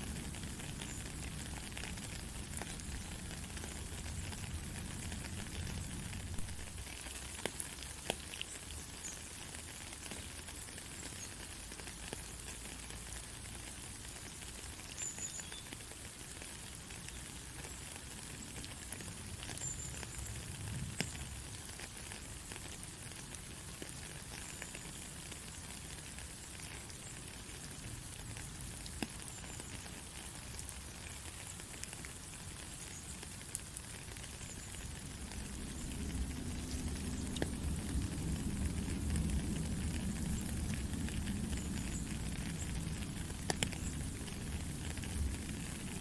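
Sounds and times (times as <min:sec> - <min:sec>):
rain falling: 0:00.0 - 0:46.0
single raindrop ticks: 0:43.3 - 0:44.0.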